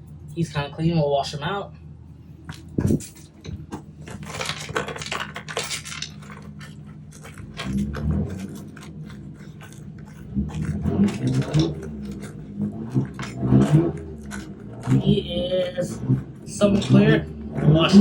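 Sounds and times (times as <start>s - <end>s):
small parts clicking and clattering: 2.5s - 17.4s.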